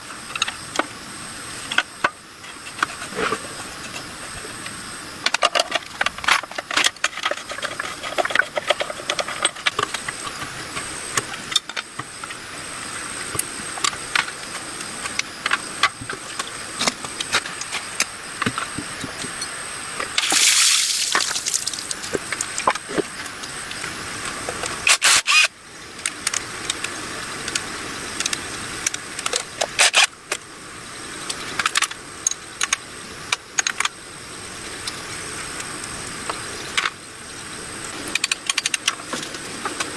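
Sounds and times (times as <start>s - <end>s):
loud hiss: 20.2s - 22.3s.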